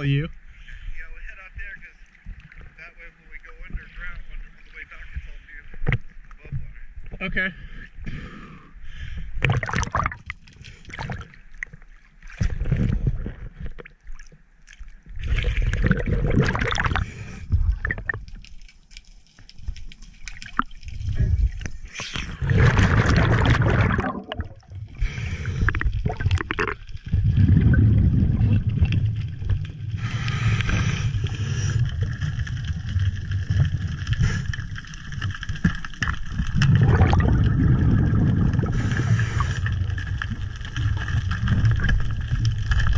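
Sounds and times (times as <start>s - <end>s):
muffled water sloshing and gurgling: 0.0s - 42.9s
low underwater rumble: 9.1s - 18.7s, 19.3s - 42.9s
bubbling: 9.1s - 42.9s.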